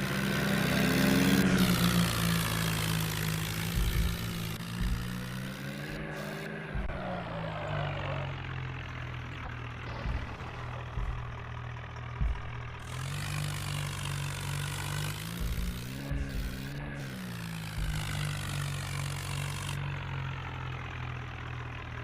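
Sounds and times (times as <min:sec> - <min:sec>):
vehicle engine running: 0:00.0 - 0:22.0
low knocks: 0:09.4 - 0:13.2.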